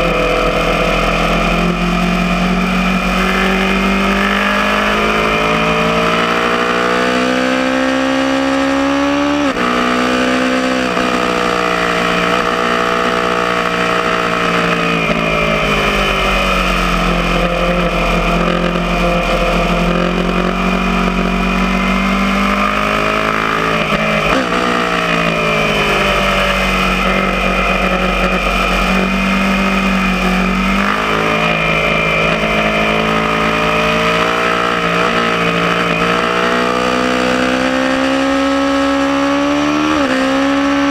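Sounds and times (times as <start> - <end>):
motorcycle engine revving: 0.0 - 40.9
steady rushing noise: 13.3 - 36.7.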